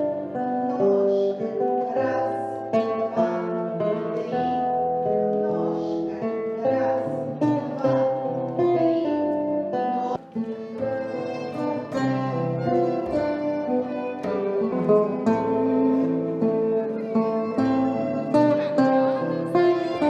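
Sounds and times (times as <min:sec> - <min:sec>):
plucked strings: 0:00.0 - 0:20.0
bowed string: 0:07.5 - 0:20.0.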